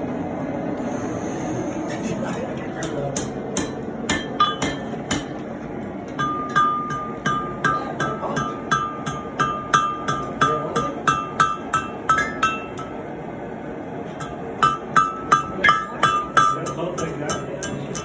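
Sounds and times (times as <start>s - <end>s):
hammer striking steel on anvil: 2.8s - 5.4s, 6.1s - 13.0s, 14.1s - 18.0s.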